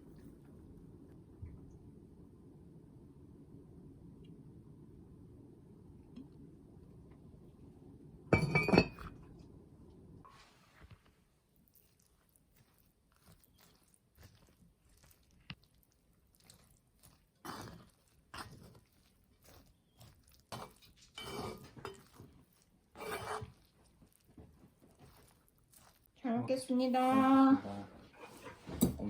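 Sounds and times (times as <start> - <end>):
dishes and utensils knocking: 8.3 - 9.1.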